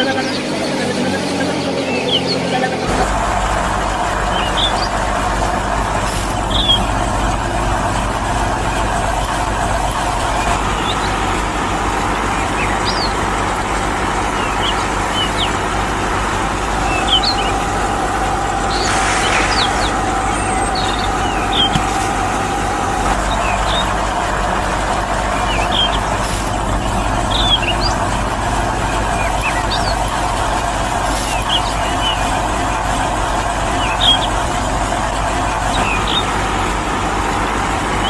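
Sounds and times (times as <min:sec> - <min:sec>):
machine running: 0:02.9 - 0:38.0
bird chirps: 0:16.8 - 0:17.7, 0:18.6 - 0:24.0.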